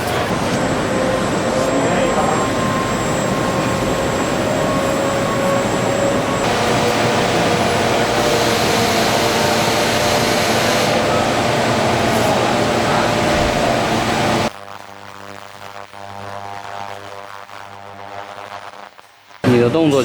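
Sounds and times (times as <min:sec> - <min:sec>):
factory machinery roar: 0:00.0 - 0:14.5.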